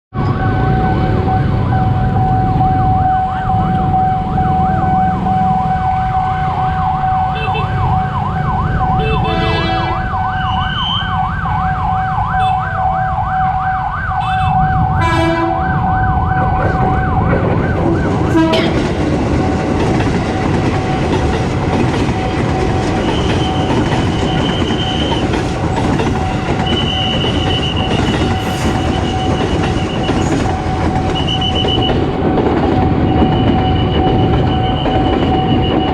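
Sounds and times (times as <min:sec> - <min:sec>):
ambulance siren yelp: 0:00.2 - 0:19.0, 0:21.9 - 0:32.0
car horn blasts: 0:09.0 - 0:10.1, 0:14.2 - 0:15.7, 0:18.4 - 0:18.8.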